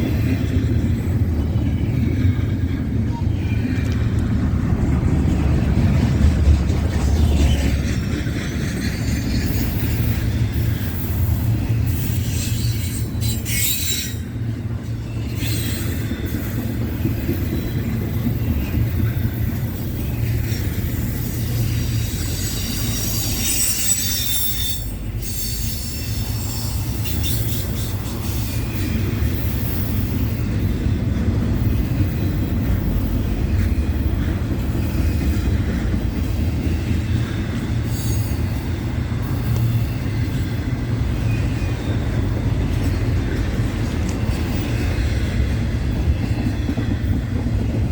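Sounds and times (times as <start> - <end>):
train wheels rumbling on rail: 0.0 - 47.9
high-pitched wheel squeal: 11.9 - 14.5, 21.2 - 30.0.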